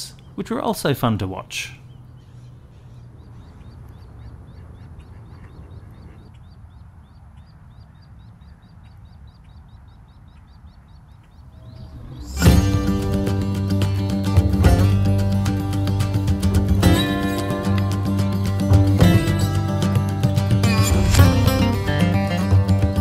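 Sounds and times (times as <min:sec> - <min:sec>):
bird peeping: 0:01.6 - 0:12.7
guitar music: 0:11.6 - 0:23.0.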